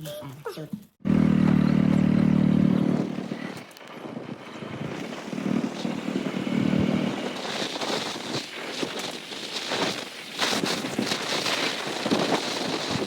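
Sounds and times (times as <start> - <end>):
engine running: 1.0 - 10.7.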